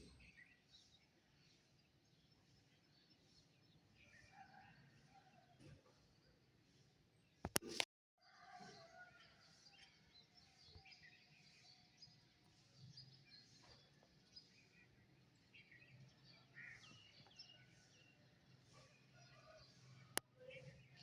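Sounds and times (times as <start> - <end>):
songbirds chirping: 0.0 - 7.8, 8.8 - 21.0.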